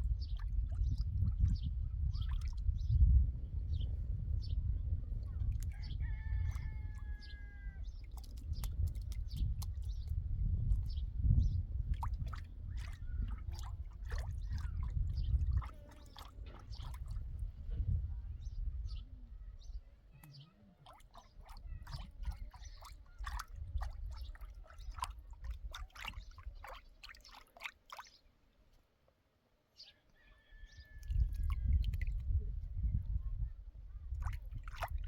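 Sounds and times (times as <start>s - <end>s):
liquid splashing and dribbling: 0.0s - 2.8s, 5.2s - 11.0s, 11.8s - 17.7s, 20.2s - 28.3s, 30.9s - 32.3s, 34.1s - 35.0s.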